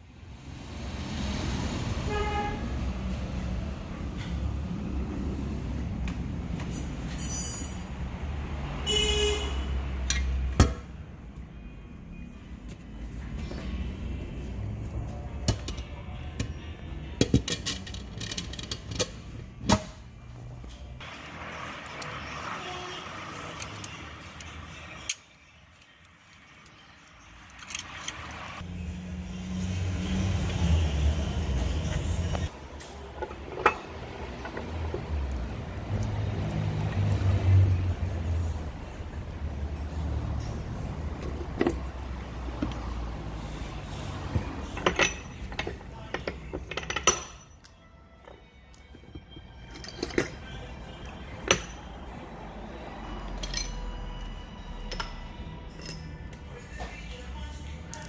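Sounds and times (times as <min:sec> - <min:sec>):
metallic clicks of tools and parts: 0:10.0 - 0:10.8, 0:17.2 - 0:19.8, 0:23.4 - 0:28.3, 0:44.7 - 0:47.8, 0:48.7 - 0:50.6, 0:51.4 - 0:51.8, 0:53.3 - 0:56.5.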